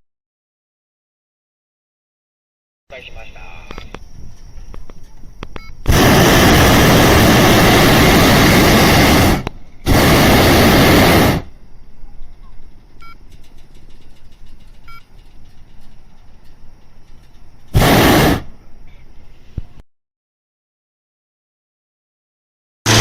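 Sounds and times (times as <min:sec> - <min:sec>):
propane burner blasts: 0:03.7 - 0:19.7.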